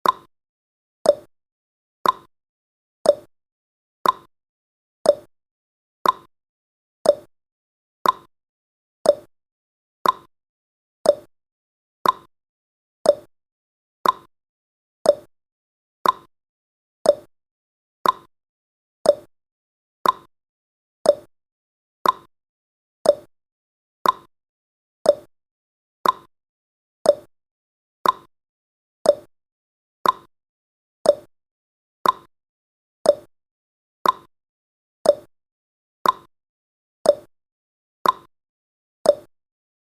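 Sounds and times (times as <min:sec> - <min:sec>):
timer ticking: 0:00.0 - 0:00.3, 0:01.0 - 0:01.3, 0:02.0 - 0:02.3, 0:03.0 - 0:03.3, 0:04.0 - 0:04.3, 0:05.1 - 0:05.3, 0:06.0 - 0:06.3, 0:07.0 - 0:07.3, 0:08.0 - 0:08.3, 0:09.0 - 0:09.3, 0:10.0 - 0:10.3, 0:11.0 - 0:11.3, 0:12.0 - 0:12.3, 0:13.0 - 0:13.3, 0:14.0 - 0:14.3, 0:15.0 - 0:15.3, 0:16.0 - 0:16.3, 0:17.0 - 0:17.3, 0:18.0 - 0:18.3, 0:19.0 - 0:19.3, 0:20.0 - 0:20.3, 0:21.0 - 0:21.3, 0:22.0 - 0:22.3, 0:23.0 - 0:23.3, 0:24.0 - 0:24.3, 0:25.0 - 0:25.3, 0:26.0 - 0:26.3, 0:27.0 - 0:27.3, 0:28.0 - 0:28.3, 0:29.0 - 0:29.3, 0:30.0 - 0:30.3, 0:31.0 - 0:31.3, 0:32.0 - 0:32.3, 0:33.0 - 0:33.3, 0:34.0 - 0:34.3, 0:35.0 - 0:35.3, 0:36.0 - 0:36.3, 0:37.0 - 0:37.3, 0:38.0 - 0:38.3, 0:39.1 - 0:39.3.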